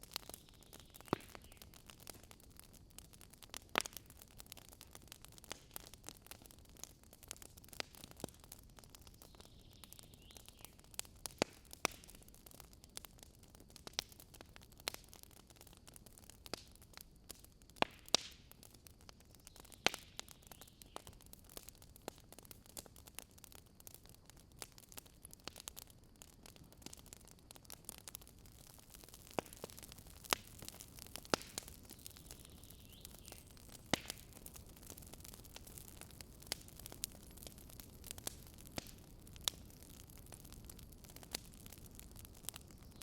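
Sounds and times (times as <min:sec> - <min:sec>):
campfire crackling: 0:00.0 - 0:43.0.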